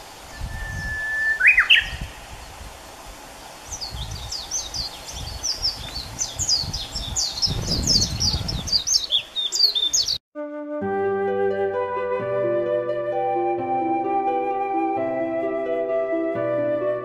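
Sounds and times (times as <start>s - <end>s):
songbirds singing: 0.0s - 10.2s.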